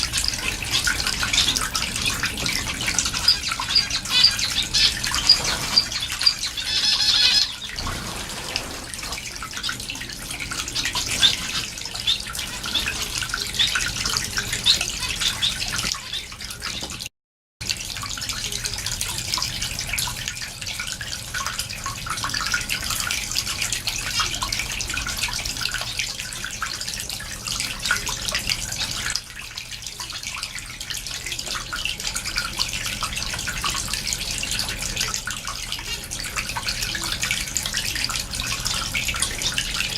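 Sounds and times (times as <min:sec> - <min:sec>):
finches chirping and twittering: 0:00.7 - 0:07.8.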